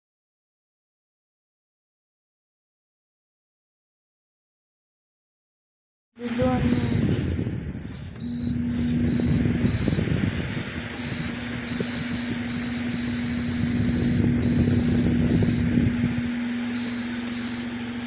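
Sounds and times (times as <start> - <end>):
electric fan hum: 6.2 - 18.0
fan air buffeting microphone: 6.2 - 18.0
thin high tone: 6.3 - 7.1, 8.2 - 10.1, 11.0 - 18.0.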